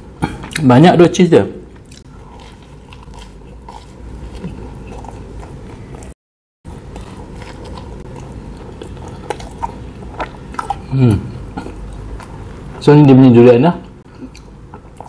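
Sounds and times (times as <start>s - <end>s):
biting and chewing: 1.8s - 10.9s.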